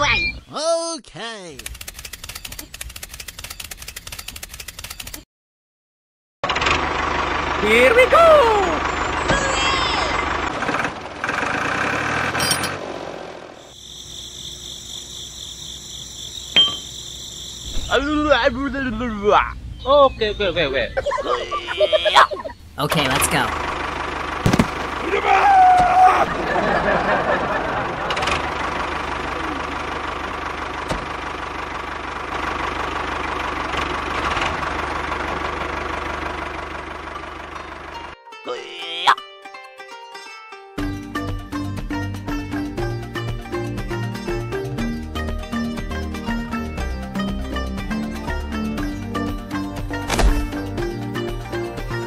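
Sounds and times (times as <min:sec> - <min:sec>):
small engine running: 0:01.6 - 0:05.2, 0:06.4 - 0:17.7, 0:23.0 - 0:25.3, 0:26.0 - 0:38.2
small machine rattling: 0:01.6 - 0:05.2
high pulsing chirr: 0:13.6 - 0:23.8
metallic clink: 0:16.6 - 0:16.9.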